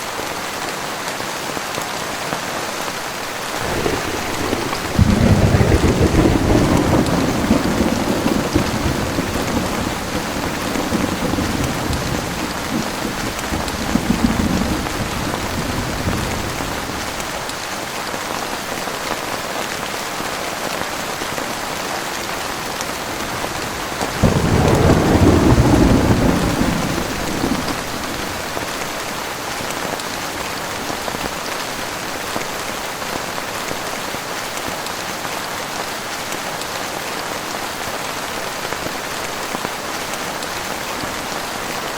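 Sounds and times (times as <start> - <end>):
heavy rain pouring: 0.0 - 41.9
thunder rumbling: 3.5 - 17.5, 22.6 - 29.2.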